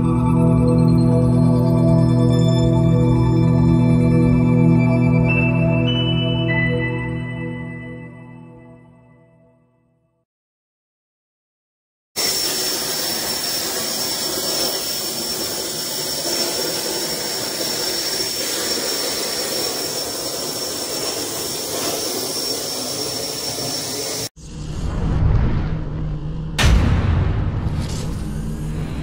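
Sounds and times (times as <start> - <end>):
plasma torch cutting: 12.2 - 24.3.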